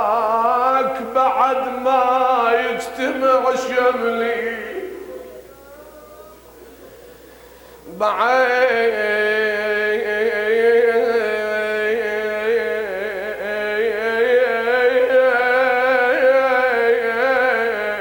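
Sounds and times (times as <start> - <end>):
man chanting a wavering note: 0.0 - 6.5.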